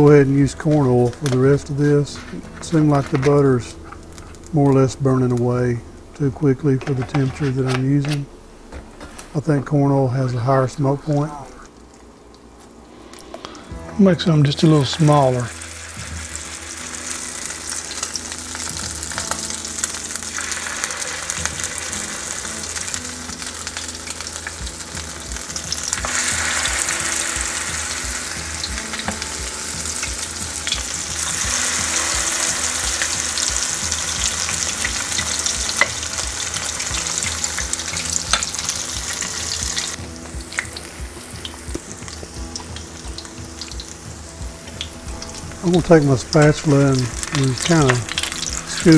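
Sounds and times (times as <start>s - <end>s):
batter sizzling in a skillet: 12.9s - 48.9s.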